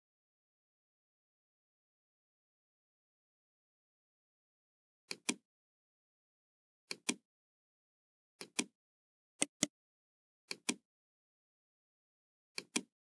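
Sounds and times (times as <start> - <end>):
computer mouse clicking: 5.1 - 5.4, 6.9 - 7.2, 8.4 - 8.7, 9.4 - 9.7, 10.5 - 10.8, 12.6 - 12.9.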